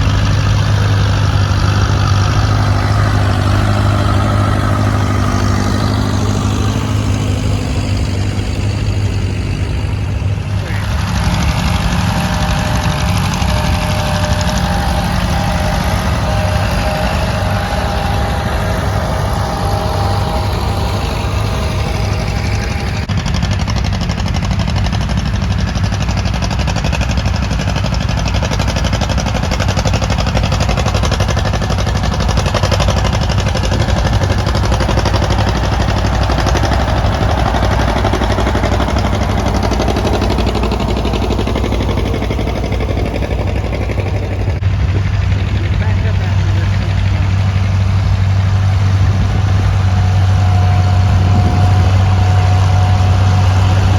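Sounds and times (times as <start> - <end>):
tractor engines droning: 0.0 - 53.9
high steady tone: 9.2 - 23.1.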